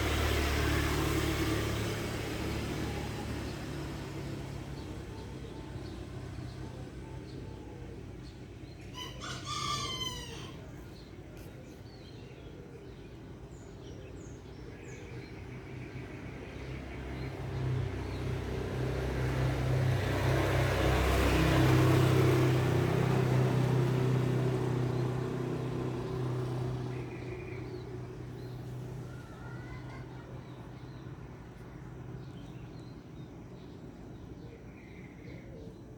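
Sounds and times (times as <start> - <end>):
vehicle passing: 0.0 - 11.5, 14.2 - 34.4
rooster crowing: 8.9 - 10.8.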